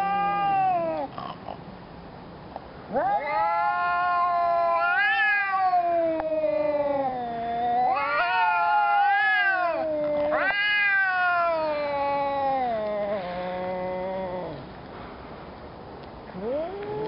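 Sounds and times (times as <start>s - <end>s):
cats yowling: 0.0s - 1.2s, 2.9s - 14.7s.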